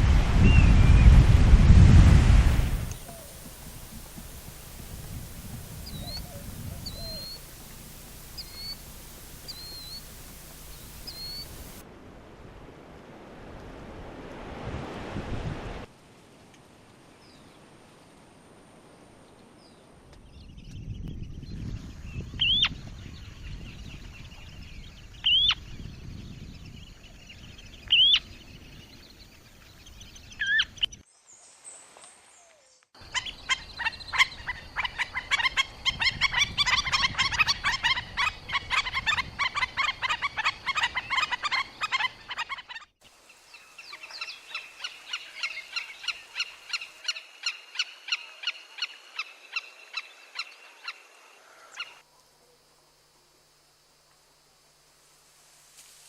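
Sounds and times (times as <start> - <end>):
rising bird calls: 2.9 - 11.8, 33.0 - 42.9
bird chattering: 3.0 - 11.8
repeated bird notes: 3.0 - 11.8.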